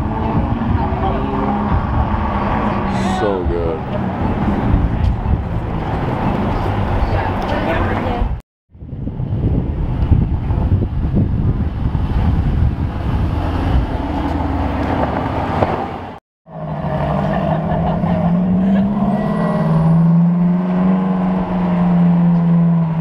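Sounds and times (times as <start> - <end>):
car engine droning pulling away: 12.2 - 23.0.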